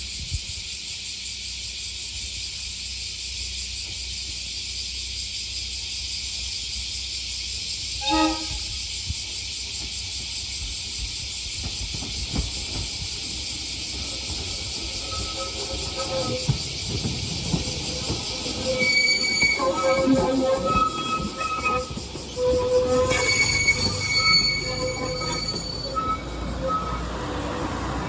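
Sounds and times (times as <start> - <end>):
diesel railcar running: 0.0 - 28.0
train horn blast: 8.0 - 8.7.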